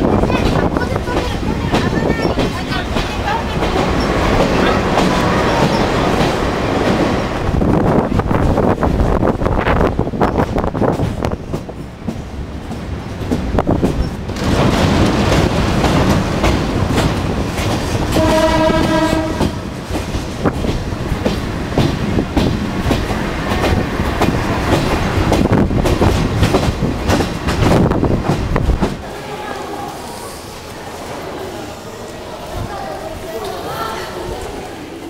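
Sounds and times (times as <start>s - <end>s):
wheels clacking over rail joints: 0.0s - 29.3s
diesel train running: 0.0s - 30.0s
train horn: 18.1s - 19.7s.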